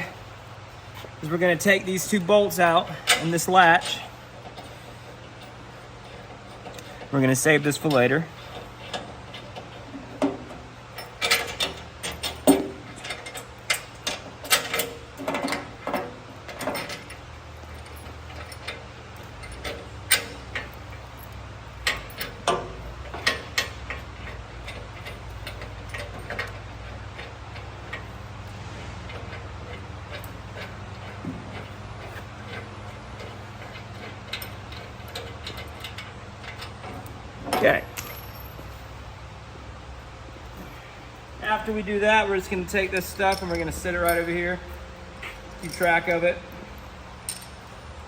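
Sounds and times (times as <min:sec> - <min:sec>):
steady low hum: 0:00.0 - 0:48.0
metallic clicks of tools and bolts: 0:02.0 - 0:04.8, 0:05.4 - 0:28.2, 0:29.0 - 0:38.8, 0:42.4 - 0:47.7.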